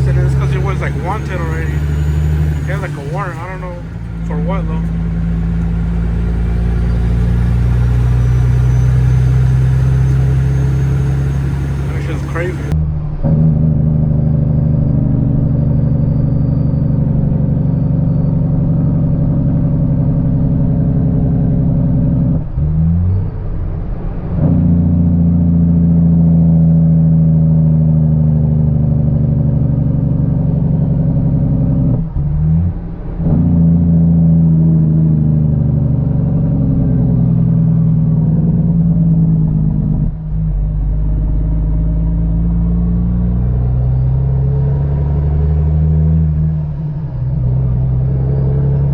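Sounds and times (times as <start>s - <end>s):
truck diesel engine under load: 0.0s - 12.8s.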